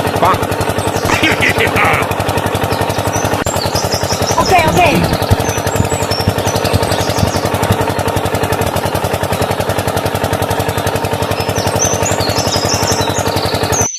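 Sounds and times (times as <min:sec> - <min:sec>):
small diesel engine chugging: 0:00.0 - 0:13.9
birds chirping: 0:00.6 - 0:09.6.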